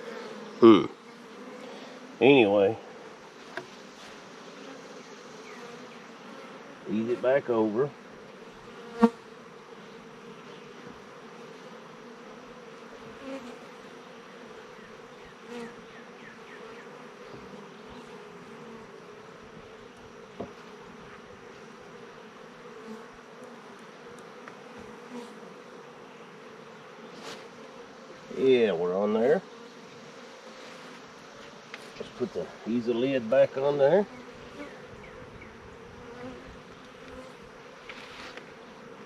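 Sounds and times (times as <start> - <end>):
bee flying close past: 0.0 - 39.0
honeybees buzzing: 0.0 - 39.0.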